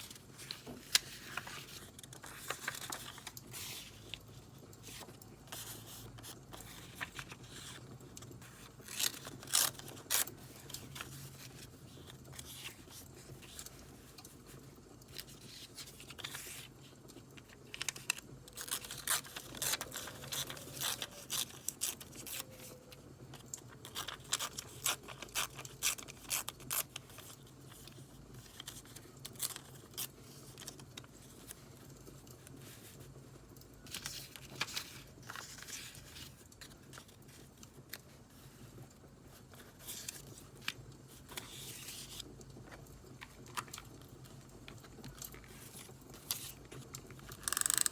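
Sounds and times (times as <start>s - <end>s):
paper scraping and tearing: 17.8s - 22.7s.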